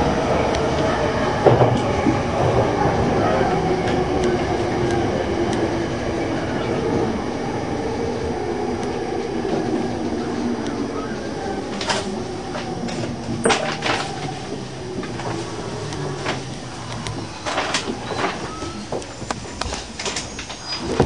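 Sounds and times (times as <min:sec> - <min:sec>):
train motor hum: 0:00.0 - 0:21.0
train running noise: 0:00.0 - 0:21.0
sharp clicks and squeaks: 0:15.9 - 0:21.0.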